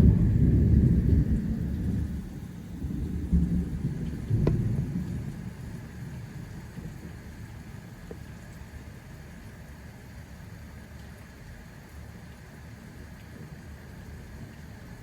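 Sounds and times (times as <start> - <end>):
thunder rumbling: 0.0 - 6.1
steady rain: 0.0 - 15.0.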